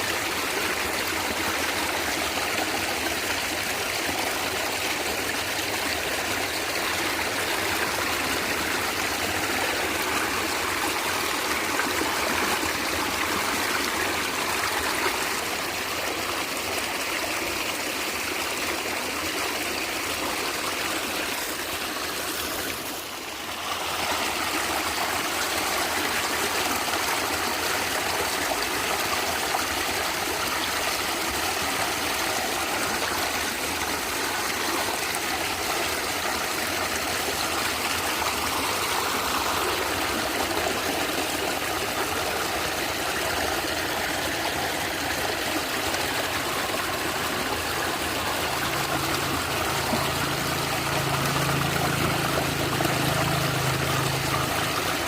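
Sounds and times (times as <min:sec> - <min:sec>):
stream gurgling and trickling: 0:00.0 - 0:55.0.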